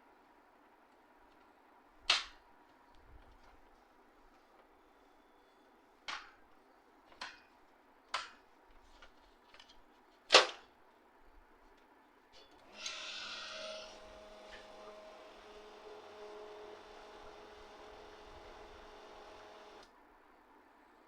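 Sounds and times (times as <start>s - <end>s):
scraping hiss: 12.7s - 14.6s.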